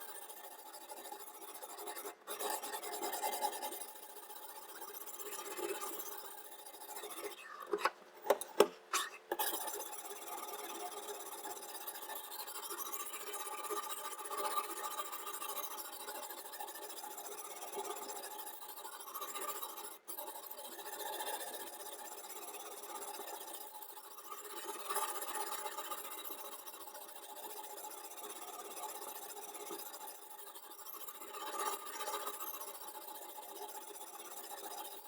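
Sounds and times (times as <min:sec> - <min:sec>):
sharpening stone rasping on knife: 0:07.1 - 0:09.7
sharp clicks and knocks: 0:07.6 - 0:09.5.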